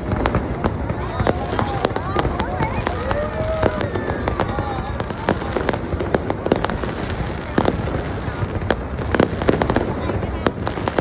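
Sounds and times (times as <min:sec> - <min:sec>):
fireworks bangs: 0:00.0 - 0:11.0
rumble of explosions: 0:00.0 - 0:11.0.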